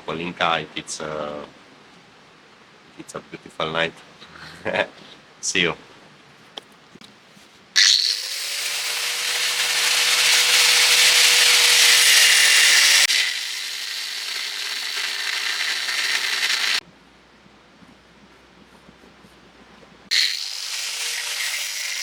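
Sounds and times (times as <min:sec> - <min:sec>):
power tool grinding and cutting: 0:07.8 - 0:16.8, 0:20.1 - 0:22.0.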